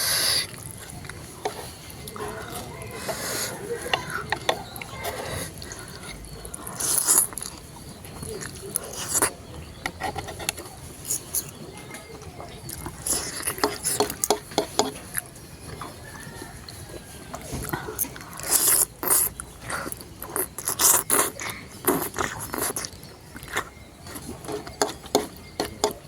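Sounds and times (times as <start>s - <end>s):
slurping noodles: 0.0s - 11.6s, 12.7s - 25.8s
wet chewing: 0.0s - 26.0s
mouth clicks: 17.3s - 26.0s.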